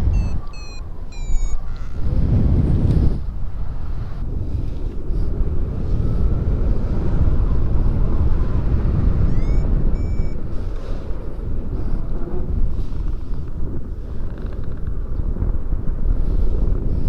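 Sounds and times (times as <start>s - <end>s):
high beep: 0.0s - 1.6s, 9.3s - 10.4s
short rising chirp: 0.0s - 2.0s, 9.3s - 10.4s
wind buffeting microphone: 0.0s - 17.0s.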